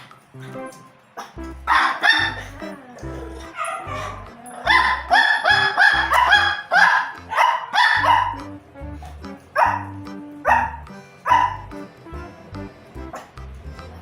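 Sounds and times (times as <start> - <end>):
background music: 0.0 - 14.0
small dog barking: 1.2 - 2.6, 3.4 - 8.4, 9.6 - 11.7.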